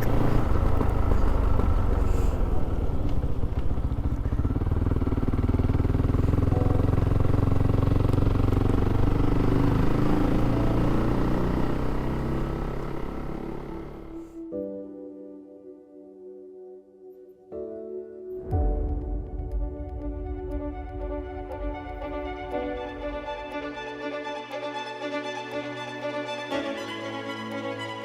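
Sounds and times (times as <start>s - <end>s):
motorcycle engine running: 0.0s - 14.4s, 18.5s - 23.9s.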